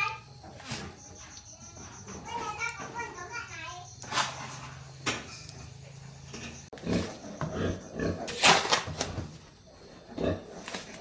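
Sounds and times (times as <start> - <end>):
pigs squealing and grunting: 6.8 - 8.8, 9.8 - 11.0.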